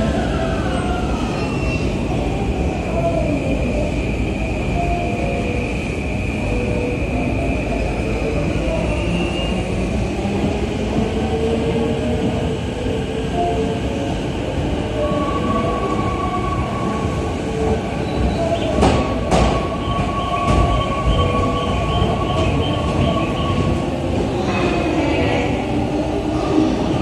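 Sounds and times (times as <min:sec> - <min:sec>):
electric train rumbling: 0:00.0 - 0:27.0
train wheels squealing: 0:00.6 - 0:02.2, 0:03.8 - 0:09.9, 0:17.3 - 0:23.8.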